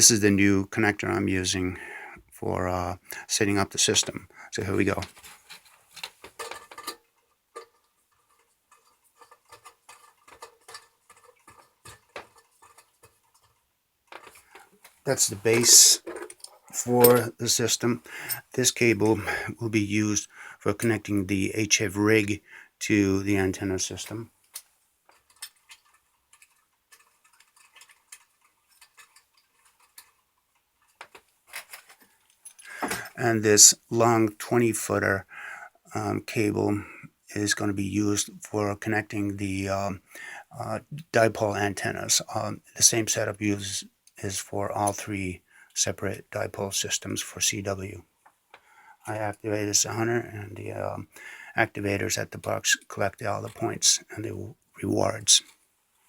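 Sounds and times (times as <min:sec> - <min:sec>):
cable connectors clicking and tapping: 0:04.0 - 0:17.4, 0:24.0 - 0:33.2
cable connectors clicking: 0:07.6 - 0:17.3.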